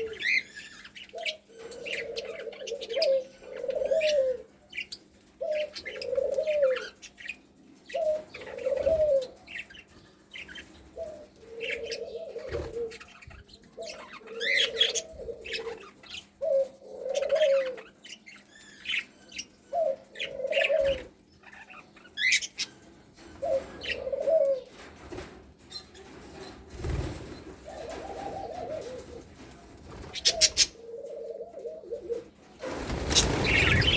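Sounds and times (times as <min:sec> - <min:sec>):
budgerigars chirping: 0:33.1 - 0:33.9.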